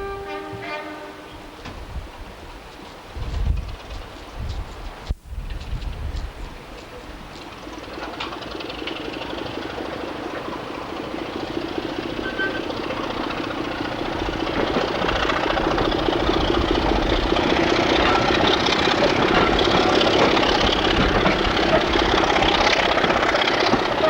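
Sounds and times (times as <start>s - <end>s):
diesel train engine humming: 0.0s - 24.0s.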